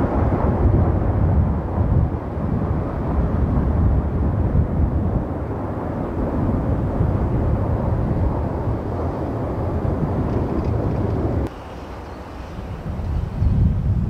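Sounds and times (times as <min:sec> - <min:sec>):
train rumbling past: 0:08.1 - 0:13.5.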